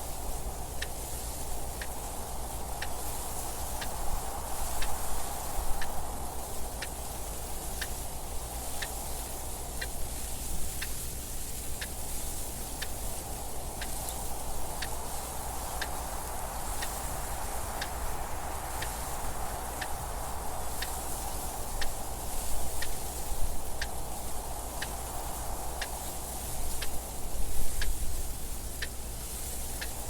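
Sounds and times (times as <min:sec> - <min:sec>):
wind noise: 0:00.0 - 0:30.0
mechanical clock ticking: 0:12.6 - 0:17.2.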